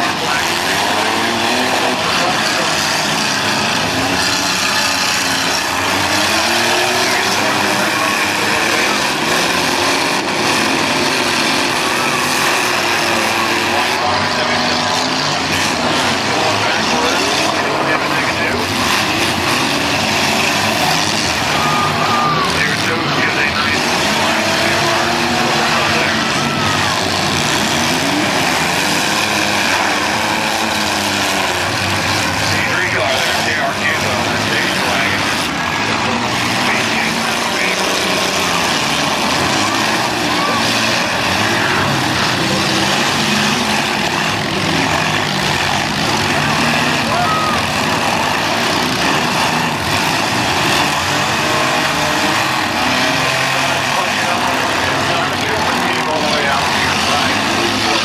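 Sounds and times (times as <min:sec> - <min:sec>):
car engines running and revving: 0:00.0 - 0:58.0.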